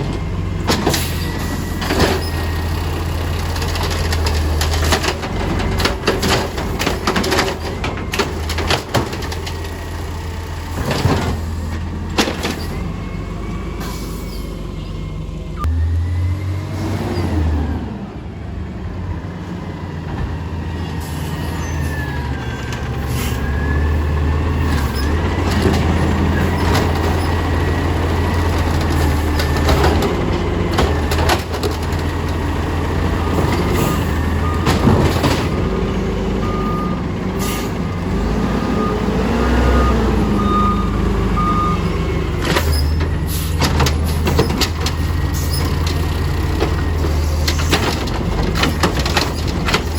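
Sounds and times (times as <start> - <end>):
garbage truck diesel engine: 0.0 - 49.9
reversing beeps: 1.2 - 2.6, 15.6 - 16.6, 33.2 - 34.8, 36.4 - 37.7, 38.6 - 42.1.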